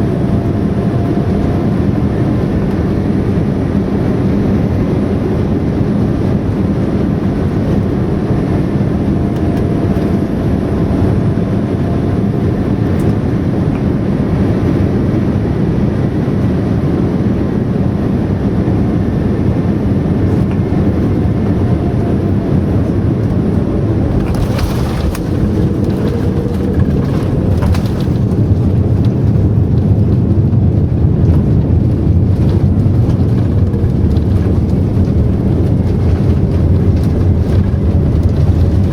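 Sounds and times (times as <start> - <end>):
jet engine cabin rumble: 0.0 - 38.9
short rattles: 24.1 - 29.3.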